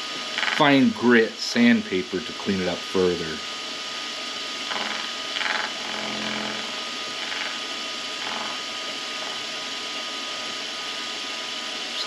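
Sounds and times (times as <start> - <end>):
lathe tool cutting metal: 0.0 - 1.0, 3.5 - 12.0
lathe whining: 0.0 - 2.6, 3.4 - 12.0.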